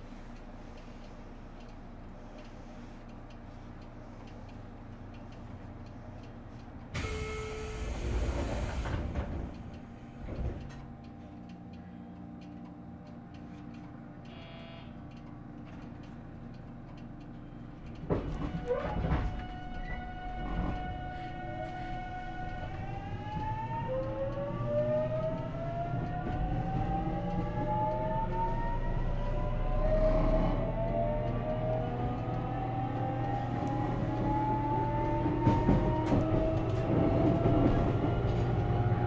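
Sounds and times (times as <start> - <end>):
faint ticking: 0.0 - 6.9, 9.5 - 18.1
electric train humming: 0.0 - 39.0.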